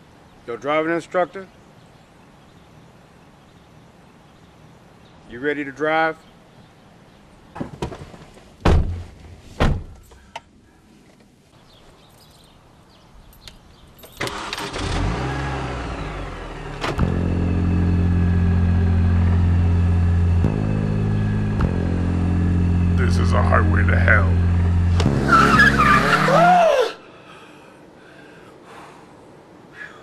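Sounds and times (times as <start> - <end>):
car engine starting and running: 14.1 - 26.6
thumps: 20.4 - 22.3, 23.8 - 25.9.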